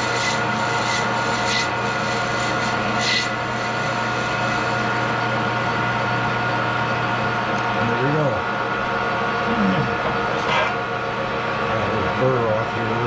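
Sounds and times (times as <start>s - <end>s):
scraping hiss of metal being cut: 0.0s - 5.1s
metal lathe humming: 0.0s - 13.0s.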